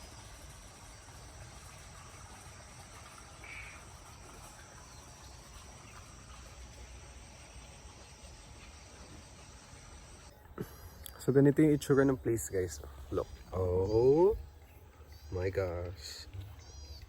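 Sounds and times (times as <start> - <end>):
insects shrilling: 9.2 - 17.0.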